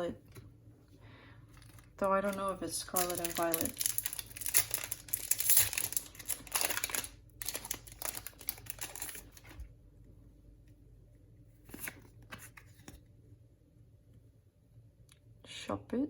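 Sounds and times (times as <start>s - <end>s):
foil wrapper crinkling and tearing: 1.6s - 9.7s.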